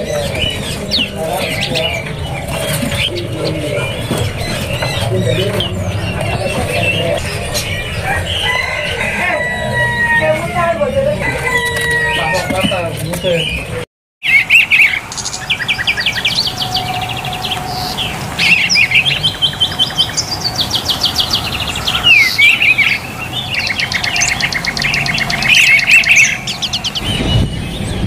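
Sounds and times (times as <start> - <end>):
songbirds singing in trills: 0.0 - 28.0.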